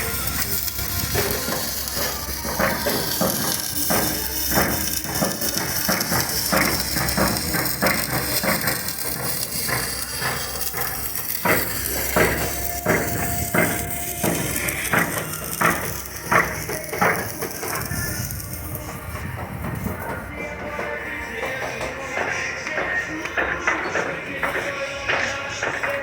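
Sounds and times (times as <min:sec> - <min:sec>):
steady hiss: 0:00.0 - 0:20.1
hammer blows on steel: 0:00.0 - 0:26.0.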